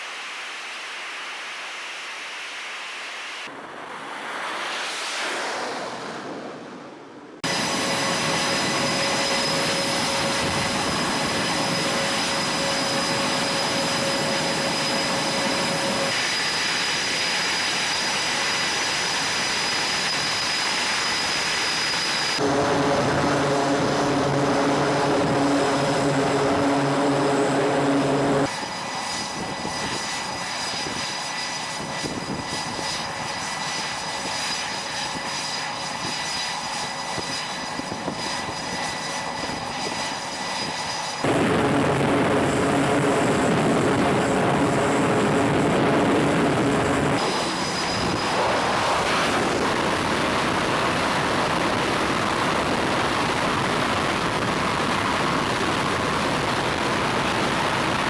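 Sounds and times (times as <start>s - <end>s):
jet engines whining: 0.0s - 58.0s
deep steady hum: 22.4s - 28.5s.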